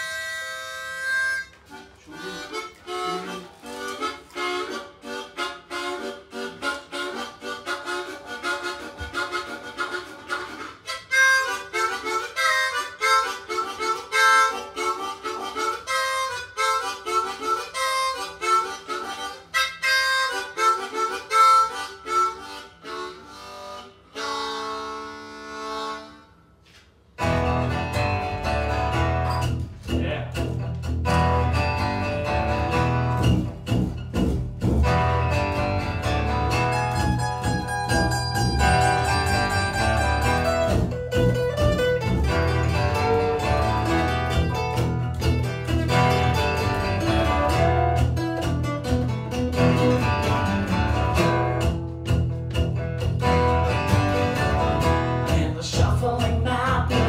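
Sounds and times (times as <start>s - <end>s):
harmonica blues solo: 0.0s - 57.0s
acoustic guitars strumming: 26.6s - 57.0s.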